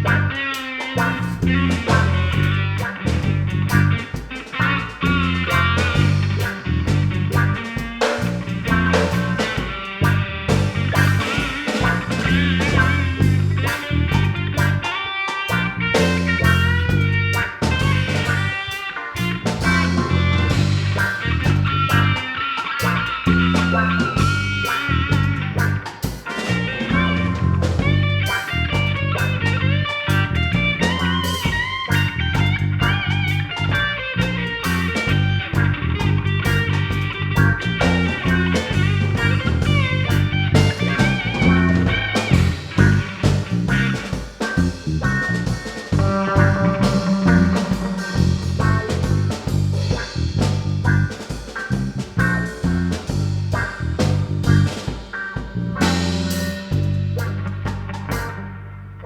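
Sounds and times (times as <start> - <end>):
band playing instrumental: 0.0 - 59.0
bending guitar line: 0.0 - 59.0.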